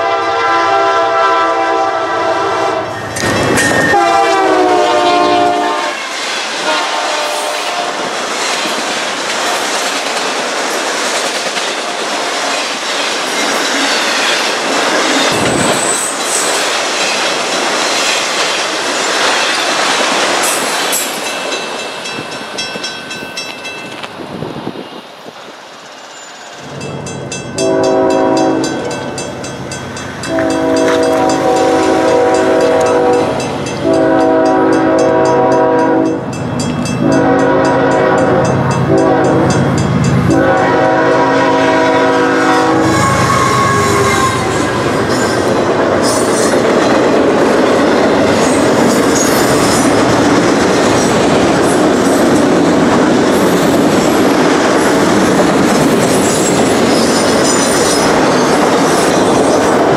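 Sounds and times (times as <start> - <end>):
locomotive air horn blasts: 0.0 - 3.0, 3.9 - 8.1, 27.6 - 28.9, 30.3 - 36.2, 37.0 - 39.6, 40.2 - 45.0
train cars rumbling on rails: 0.0 - 59.9
crossing bell ringing: 2.9 - 4.9, 12.6 - 24.2, 25.9 - 41.0.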